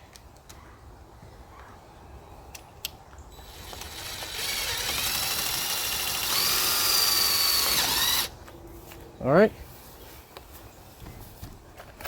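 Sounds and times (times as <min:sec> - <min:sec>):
drill whining: 0:03.4 - 0:08.3.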